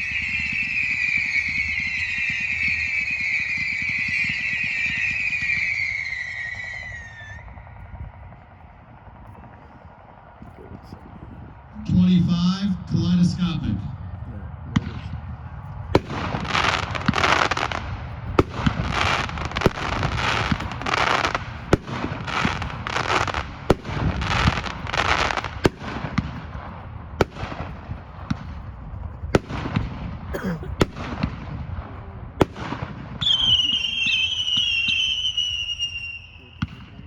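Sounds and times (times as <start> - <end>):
firework sharp reports: 0.0 - 37.0
firework hiss pulses: 16.0 - 28.8.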